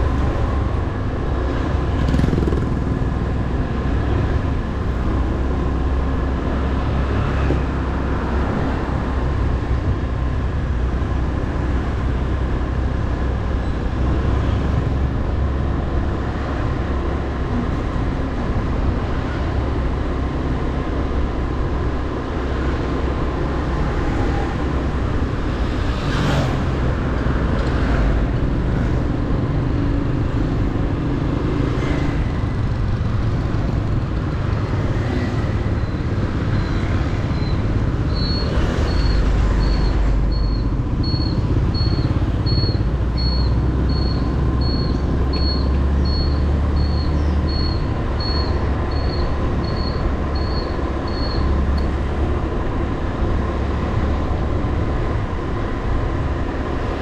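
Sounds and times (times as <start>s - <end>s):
road and wind noise: 0.0s - 57.0s
high-pitched beep: 36.7s - 51.6s.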